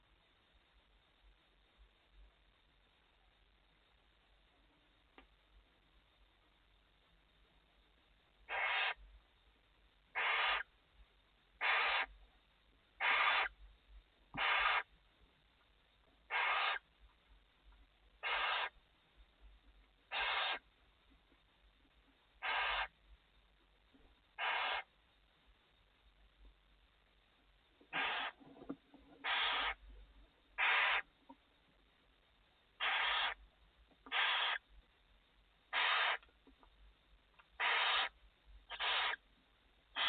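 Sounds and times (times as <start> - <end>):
owl hissing calls: 8.4 - 9.0, 10.1 - 10.7, 11.6 - 12.2, 13.0 - 13.6, 14.4 - 14.9, 16.3 - 16.8, 18.2 - 18.8, 20.1 - 20.6, 22.4 - 23.0, 24.4 - 24.9, 27.9 - 28.4, 29.2 - 29.8, 30.6 - 31.1, 32.8 - 33.4, 34.1 - 34.7, 35.7 - 36.2, 37.6 - 39.2.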